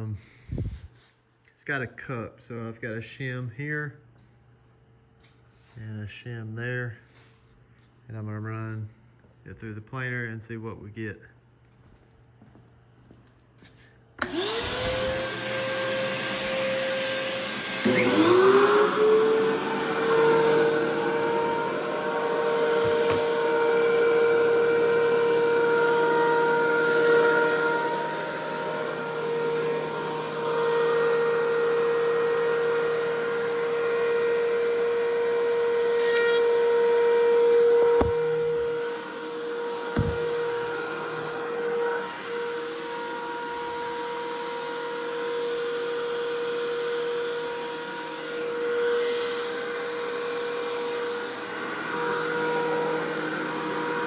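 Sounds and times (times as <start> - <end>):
planer cutter-head noise: 14.2 - 54.0
thickness planer motor whine: 14.2 - 54.0
sharp knock: 40.0 - 40.3.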